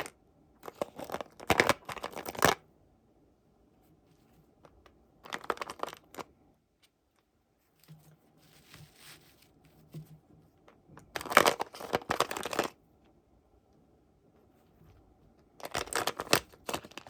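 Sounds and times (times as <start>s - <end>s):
soft rustling: 3.8s - 13.2s
packaging crinkling: 5.3s - 6.3s, 11.0s - 12.8s, 15.6s - 17.0s.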